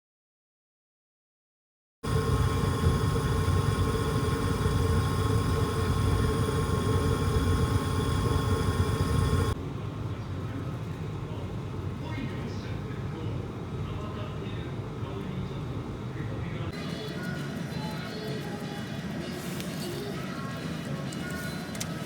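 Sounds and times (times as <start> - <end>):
thin steady tone: 2.0 - 9.6.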